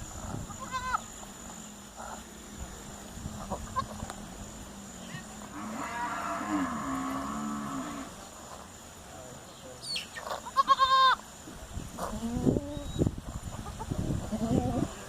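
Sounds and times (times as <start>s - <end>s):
cow mooing: 5.5s - 8.1s.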